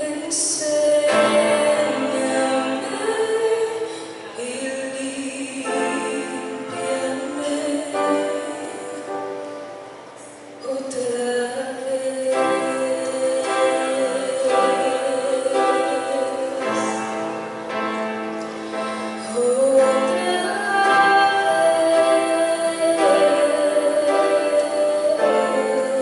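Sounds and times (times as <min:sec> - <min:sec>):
woman singing: 0:00.0 - 0:09.7, 0:10.6 - 0:17.4, 0:19.1 - 0:26.0
instrumental accompaniment: 0:12.1 - 0:26.0.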